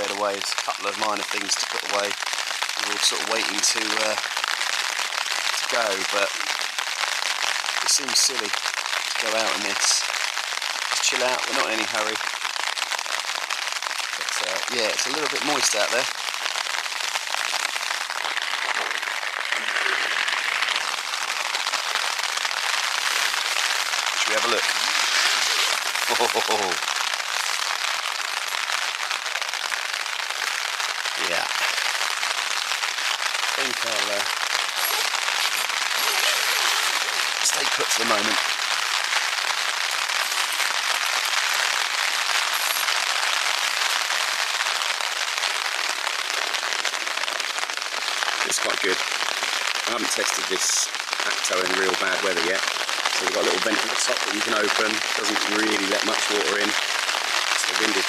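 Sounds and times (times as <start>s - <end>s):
rain pattering on tent fabric: 0.0s - 58.0s.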